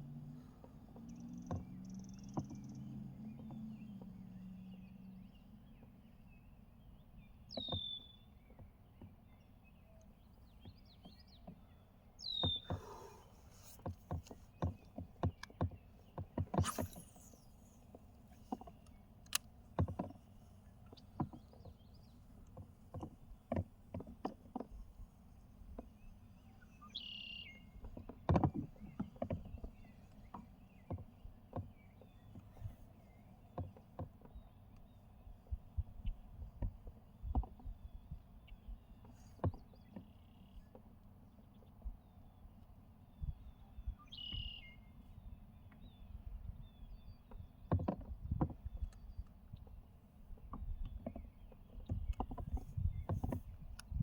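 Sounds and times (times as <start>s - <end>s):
knocks and clicks of gear handling: 12.4s - 16.8s, 18.3s - 26.0s, 27.8s - 32.8s, 33.5s - 34.9s, 47.3s - 49.8s, 50.4s - 54.0s
short high gliding chirps: 16.6s - 17.7s.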